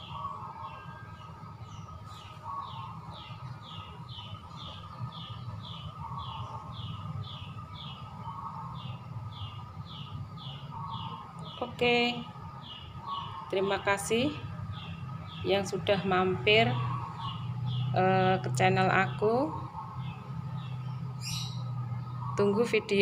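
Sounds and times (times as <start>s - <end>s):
bird chirping: 0.0s - 23.0s
low steady hum: 0.0s - 23.0s.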